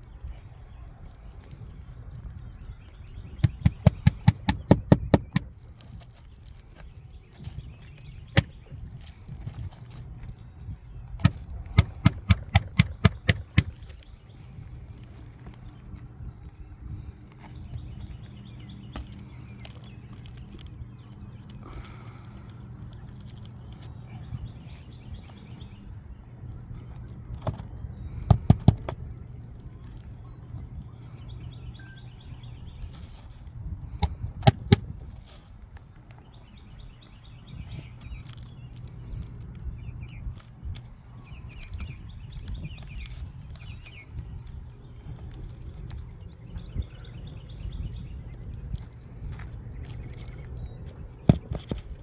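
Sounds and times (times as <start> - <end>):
faint birdsong chirps: 0.0 - 52.0
steady low hum: 0.0 - 52.0
sharp knocks: 3.4 - 5.5, 8.4 - 8.6, 11.2 - 13.9, 28.3 - 29.0, 34.0 - 35.0, 51.3 - 51.9.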